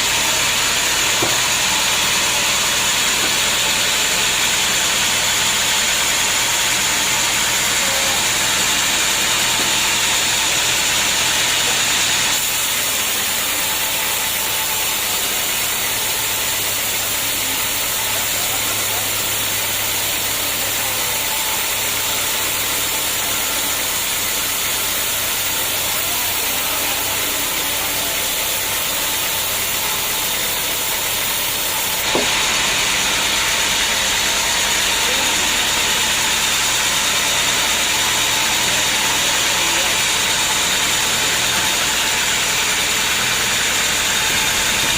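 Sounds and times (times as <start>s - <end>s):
sawmill sawing logs: 0.0s - 44.9s.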